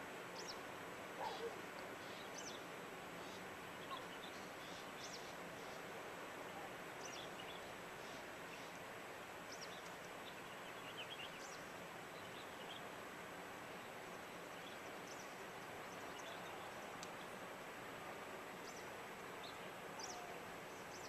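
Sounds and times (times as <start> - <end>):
small birds chirping: 1.2 - 5.9, 6.5 - 13.0, 13.8 - 17.4.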